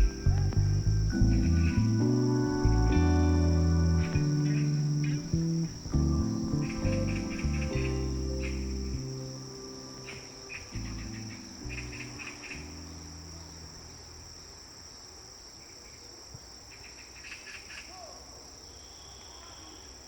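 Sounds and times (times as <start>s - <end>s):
low sustained music notes: 0.0s - 15.0s
insects chirping: 0.0s - 20.0s.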